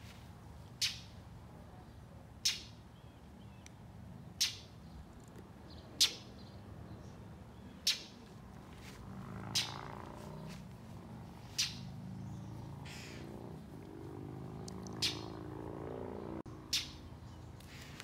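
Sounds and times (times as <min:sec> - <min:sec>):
bird scolding calls: 0:07.8 - 0:08.2, 0:09.4 - 0:10.6, 0:11.4 - 0:15.5, 0:16.2 - 0:18.0
low wavering hum: 0:10.6 - 0:17.5.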